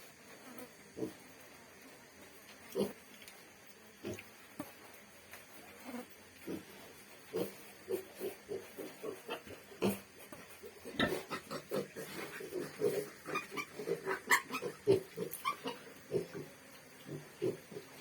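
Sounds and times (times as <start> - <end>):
pig grunting: 10.8 - 18.0.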